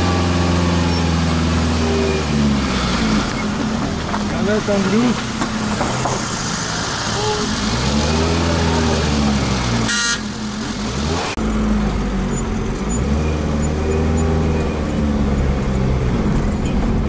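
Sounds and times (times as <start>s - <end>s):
car engine running: 0.0s - 13.7s
car horn toot: 9.9s - 10.4s.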